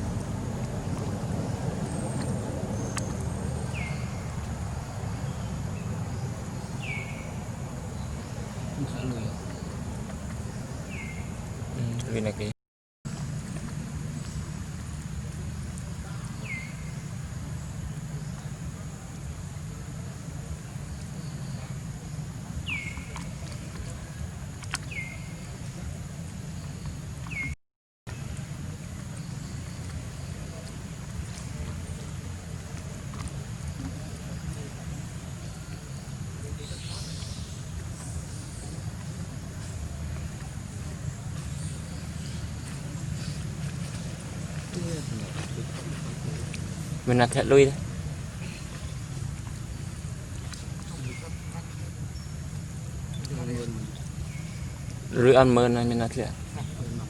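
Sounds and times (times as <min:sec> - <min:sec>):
low rumble: 0:00.0 - 0:11.8
low outdoor rumble: 0:00.0 - 0:12.5, 0:13.1 - 0:57.0.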